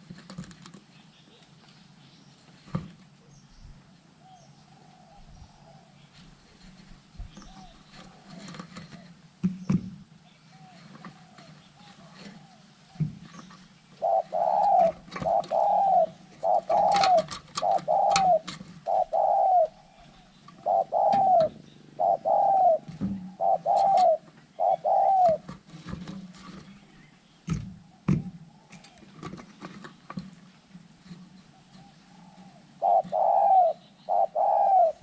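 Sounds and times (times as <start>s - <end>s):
dove cooing: 3.2s - 9.3s, 10.3s - 25.7s, 31.0s - 35.0s.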